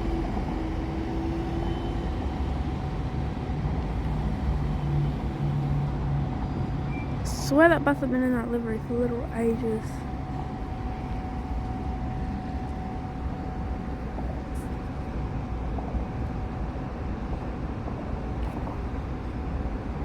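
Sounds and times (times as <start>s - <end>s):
bus engine rumbling: 0.0s - 20.0s.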